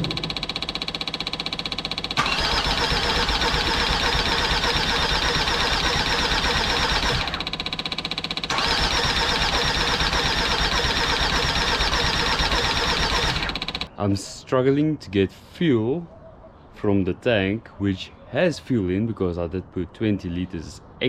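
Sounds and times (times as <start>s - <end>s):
diesel engine cranking: 0.0s - 13.9s
fast ticking: 0.0s - 13.9s.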